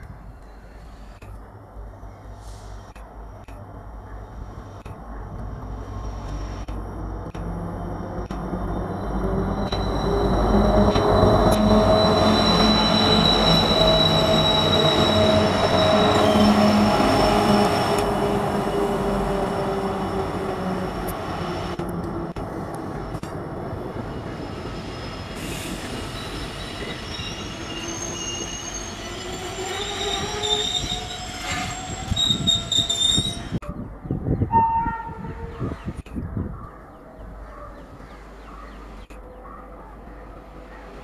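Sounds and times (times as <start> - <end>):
diesel locomotive engine drone: 0.0 - 34.0
train rolling noise: 1.1 - 33.6
train wheel squeal: 8.6 - 20.8, 24.1 - 33.6.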